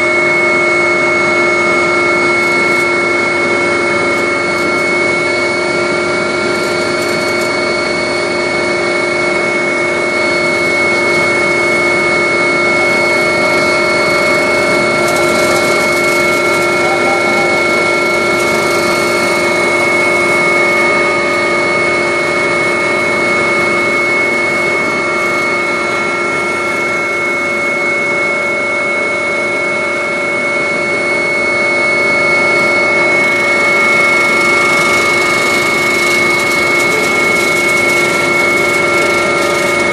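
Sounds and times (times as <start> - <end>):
constant whining tones: 0.0 - 39.9
helicopter engine and rotor din: 0.0 - 39.9.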